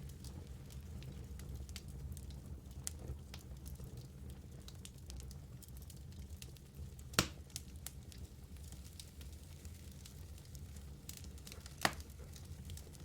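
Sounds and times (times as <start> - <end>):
fire rumbling: 0.0 - 13.0
logs crackling and snapping: 7.1 - 13.0.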